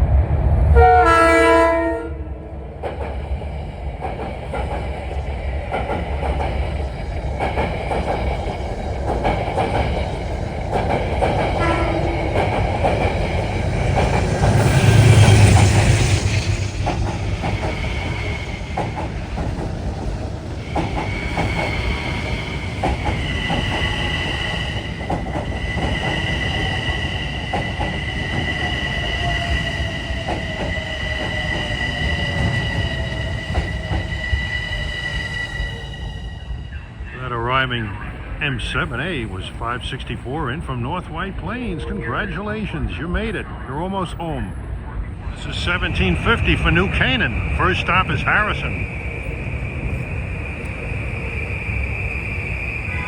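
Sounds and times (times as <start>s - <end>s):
train wheels clattering over rails: 2.7s - 35.2s
train wheel squeal: 11.4s - 19.3s, 20.5s - 37.1s, 46.4s - 53.0s.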